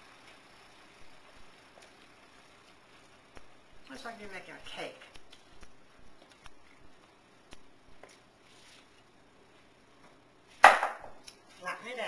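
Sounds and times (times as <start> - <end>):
loud sharp knock: 10.6 - 11.2.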